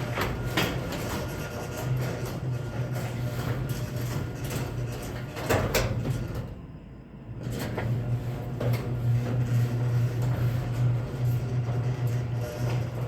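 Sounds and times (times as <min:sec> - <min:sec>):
garage door rattling and clicks: 0:00.0 - 0:06.6
garage door opener motor hum: 0:00.0 - 0:13.0.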